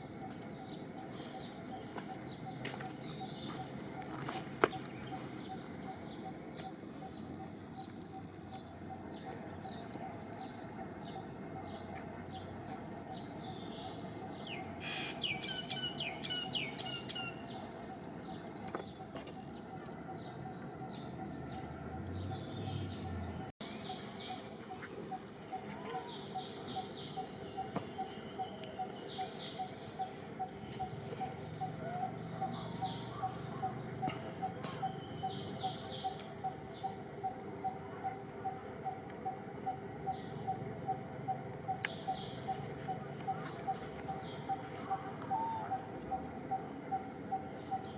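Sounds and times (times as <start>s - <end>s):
birds chirping and calling: 0.0s - 37.8s.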